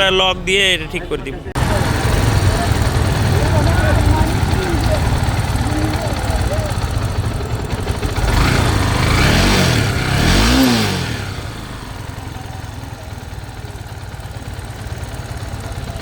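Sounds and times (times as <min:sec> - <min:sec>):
motorcycle engine idling: 0:01.0 - 0:16.0
motorcycle engine revving: 0:01.4 - 0:16.0.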